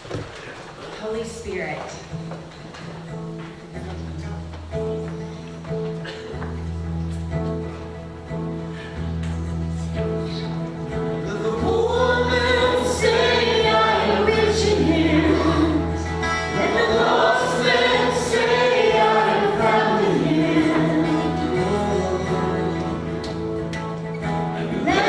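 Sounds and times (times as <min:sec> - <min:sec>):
held instrumental chords: 0:02.2 - 0:25.0
group of voices singing: 0:11.2 - 0:23.5, 0:24.4 - 0:25.0.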